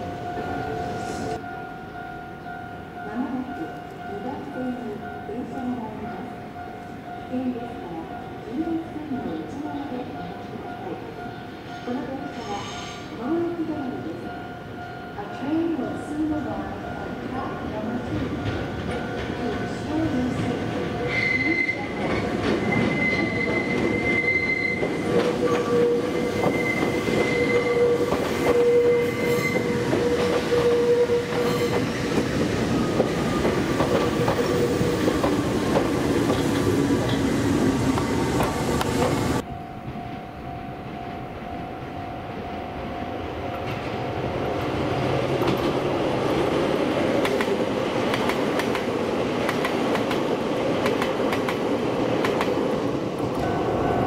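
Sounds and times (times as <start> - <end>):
train running noise: 0.0 - 54.0
train wheels squealing: 11.3 - 13.1, 21.1 - 32.0.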